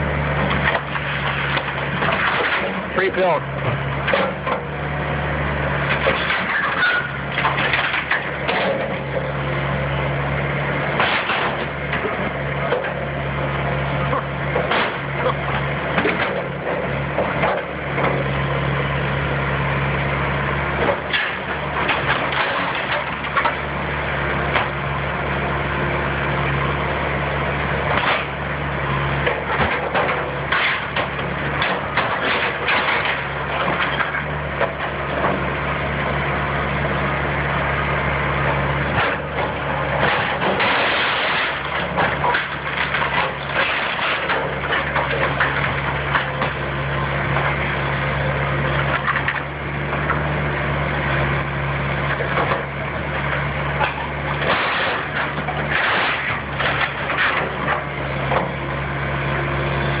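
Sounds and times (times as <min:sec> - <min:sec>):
wood cracking and splintering: 0:00.0 - 0:04.8, 0:05.8 - 0:09.4, 0:10.8 - 0:13.2, 0:14.0 - 0:18.3, 0:20.8 - 0:24.8, 0:27.8 - 0:35.5, 0:38.5 - 0:50.3, 0:52.0 - 0:58.8
demolition machine engine running: 0:00.0 - 1:00.0.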